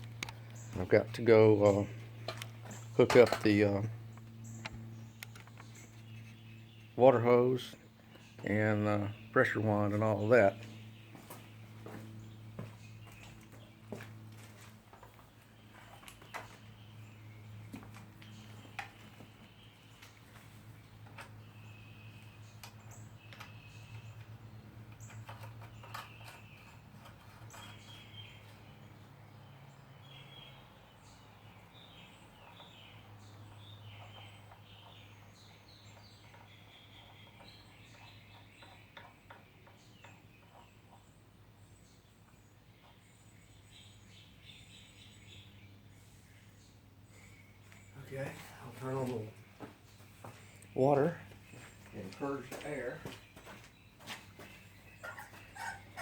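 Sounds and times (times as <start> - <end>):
steady low hum: 0.0 - 30.6
small birds chirping: 0.0 - 56.0.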